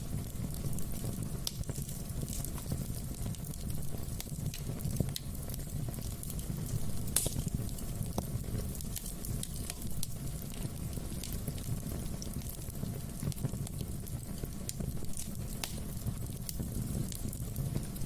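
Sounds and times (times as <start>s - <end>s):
fire crackling and popping: 0.0s - 18.0s.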